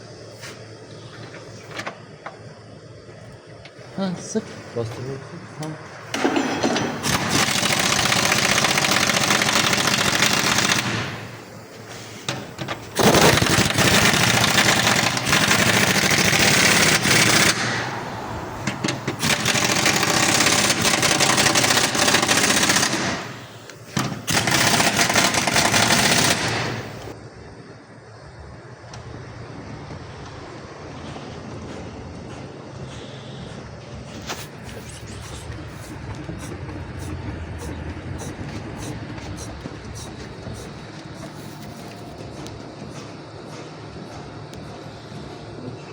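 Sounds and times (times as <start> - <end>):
car rattling over rough road: 12.4 - 21.9, 34.2 - 44.4.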